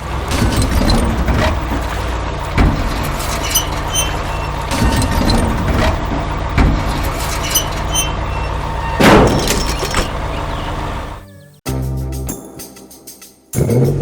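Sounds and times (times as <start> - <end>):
heavy machinery engine rumble: 0.0 - 11.5
knocking: 2.5 - 10.2
loud crash: 9.0 - 10.1.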